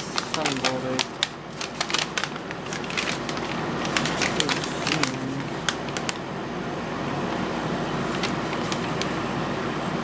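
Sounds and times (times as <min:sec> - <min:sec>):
paper crinkling: 0:00.0 - 0:06.2, 0:07.9 - 0:09.2
steady background hum: 0:00.0 - 0:10.0.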